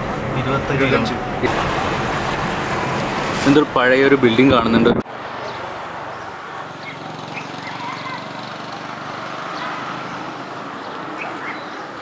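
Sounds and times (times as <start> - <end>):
bird chirps: 6.8 - 8.2, 10.8 - 12.0.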